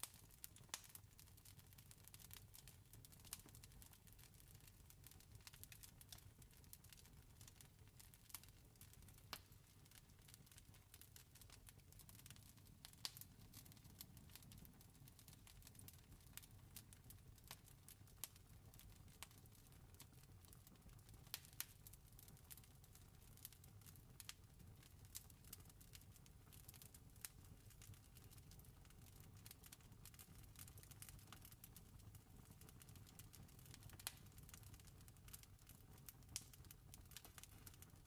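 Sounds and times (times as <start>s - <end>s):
campfire crackling: 0.0s - 1.0s, 8.2s - 17.5s, 21.3s - 22.6s, 26.7s - 38.0s.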